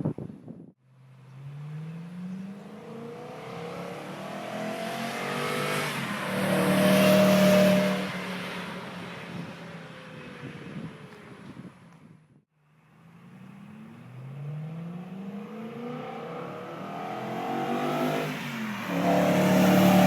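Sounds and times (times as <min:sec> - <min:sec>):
car exhaust accelerating past: 0:14.0 - 0:20.0.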